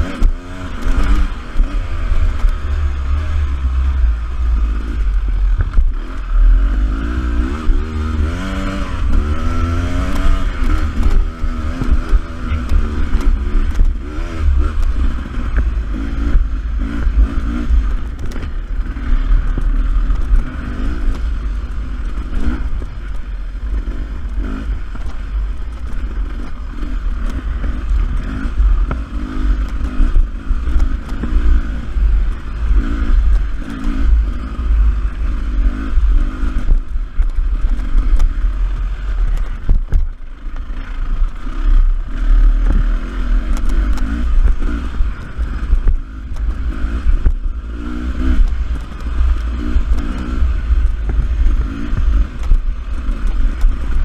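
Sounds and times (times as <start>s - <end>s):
heavy low rumble: 0.0s - 54.0s
motorcycle engine revving: 0.0s - 54.0s.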